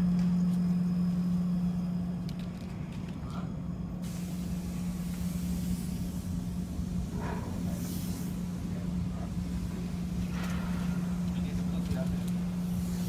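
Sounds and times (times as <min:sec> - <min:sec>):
machinery humming: 0:00.0 - 0:13.0
hiss: 0:04.0 - 0:11.3, 0:12.3 - 0:13.0.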